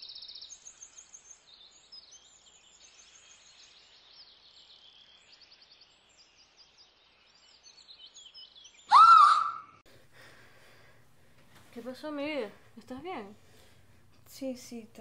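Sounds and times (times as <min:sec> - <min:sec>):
small birds chirping: 0:00.0 - 0:09.8.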